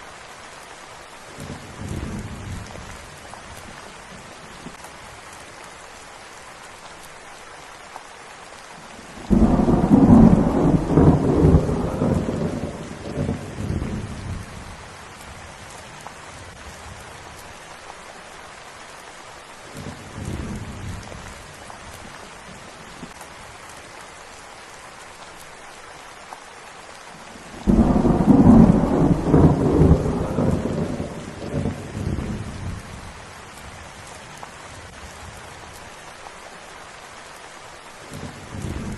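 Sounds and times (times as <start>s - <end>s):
steady rain: 0.0s - 38.9s
thunder rumbling: 9.2s - 15.7s, 27.5s - 34.2s.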